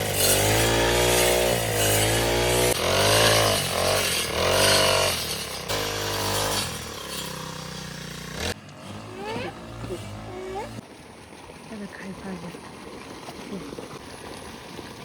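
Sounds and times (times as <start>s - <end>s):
small engine revving: 0.0s - 10.8s.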